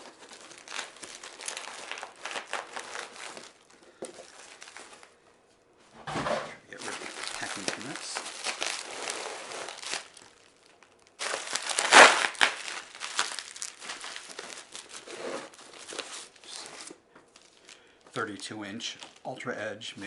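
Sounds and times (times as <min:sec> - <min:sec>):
sharp packaging crunch: 0:00.0 - 0:05.1, 0:06.8 - 0:16.7
packaging crinkling and rustling: 0:00.0 - 0:05.2, 0:06.8 - 0:19.4.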